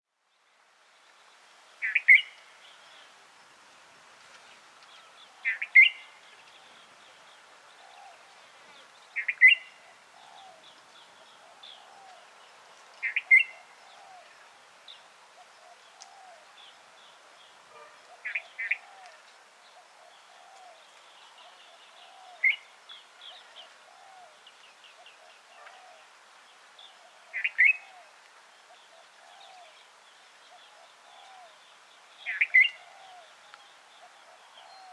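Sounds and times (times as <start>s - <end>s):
faint twittering of small birds: 0.1s - 34.9s
bird calling: 1.8s - 2.4s, 5.3s - 6.8s, 7.8s - 12.3s, 13.0s - 14.4s, 17.7s - 24.4s, 27.0s - 29.8s, 32.2s - 34.9s.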